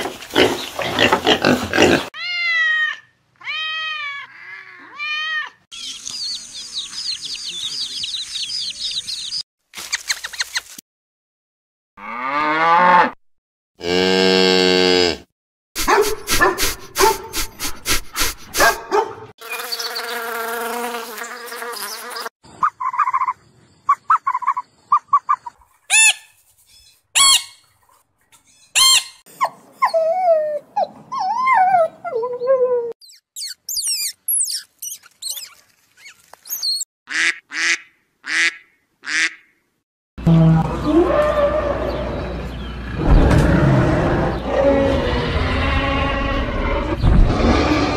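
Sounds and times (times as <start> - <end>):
cow mooing: 12.0 - 13.2, 13.8 - 15.2
budgerigar chirping and warbling: 22.6 - 27.6, 28.5 - 29.5, 33.0 - 38.5.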